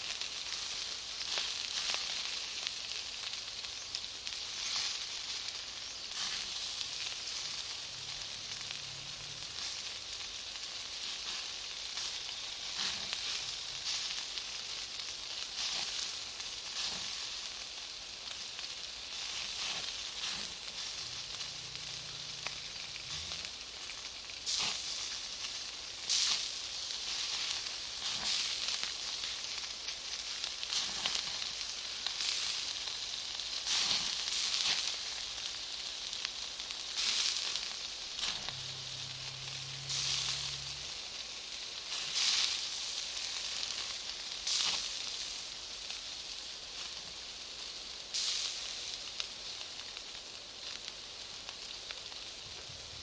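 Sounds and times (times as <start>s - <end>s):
bonfire crackling and hissing: 0.0s - 53.0s
fire pops: 19.2s - 25.3s, 36.9s - 41.0s.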